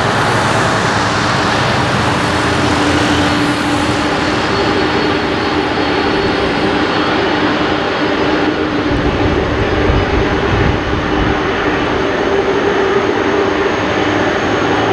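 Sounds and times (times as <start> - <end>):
jet engine roar: 0.0 - 14.9
deep rumble: 8.7 - 12.2.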